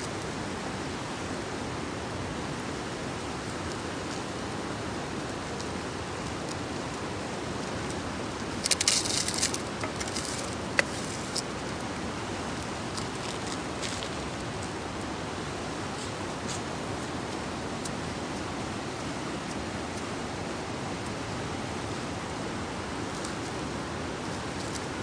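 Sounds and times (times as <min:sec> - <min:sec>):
campfire burning rush: 0:00.0 - 0:25.0
fire crackling and popping: 0:07.9 - 0:11.4.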